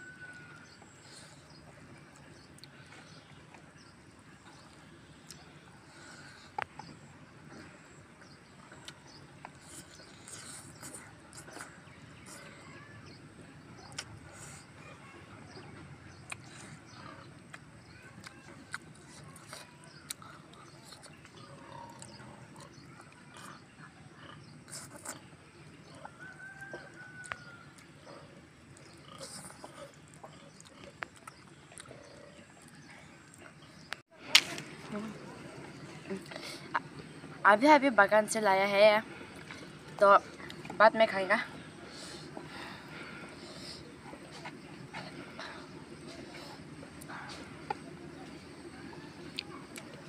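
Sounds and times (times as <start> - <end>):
lip smacks: 13.8 - 14.2, 16.3 - 16.7
mouth clicks: 13.8 - 14.2
wet chewing and lip smacks: 13.8 - 14.6, 16.2 - 16.7, 17.4 - 23.6, 25.9 - 27.9, 28.7 - 34.0
wet chewing: 13.8 - 14.8, 16.1 - 37.3, 39.0 - 50.0.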